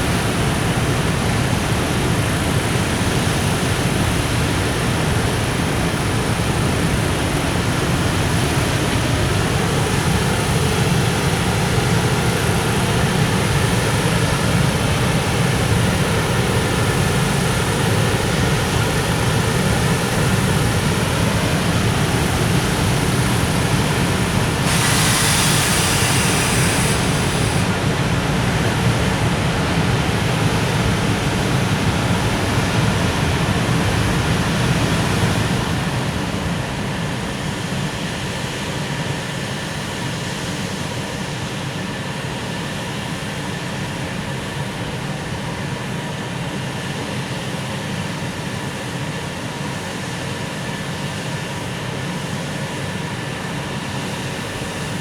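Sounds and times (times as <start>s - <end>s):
train wheels rumbling on rails: 0.0s - 36.4s
brief hiss: 24.5s - 27.8s.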